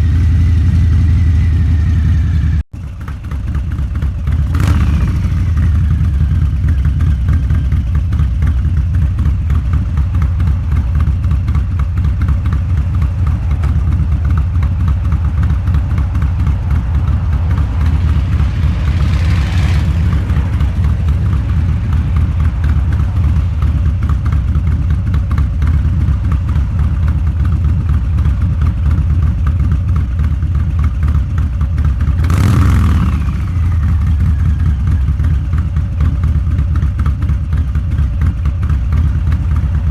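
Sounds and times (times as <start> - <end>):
motorcycle exhaust pulse: 0.0 - 39.9
rushing noise: 10.4 - 31.0.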